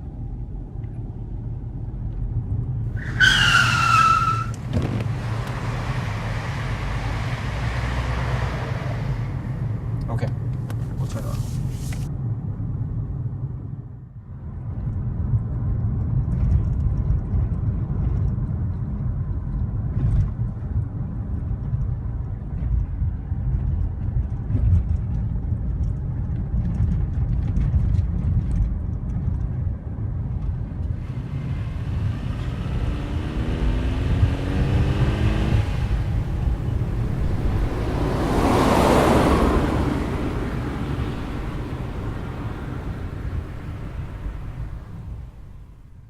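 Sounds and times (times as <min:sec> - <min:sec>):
car engine and road noise: 0:00.0 - 0:46.0.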